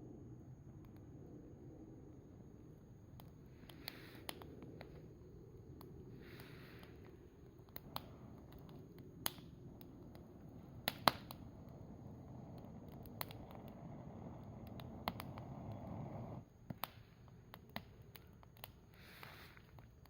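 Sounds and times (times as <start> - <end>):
campfire crackling and popping: 3.1 - 20.0
steady low rush: 4.6 - 16.4.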